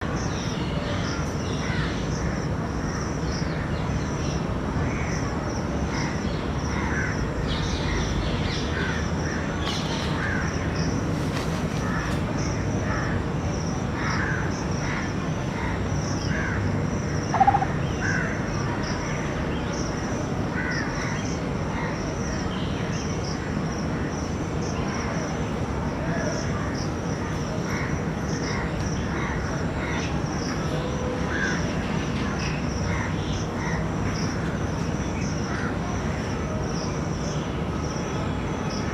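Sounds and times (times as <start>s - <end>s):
birds calling: 14.0s - 19.8s.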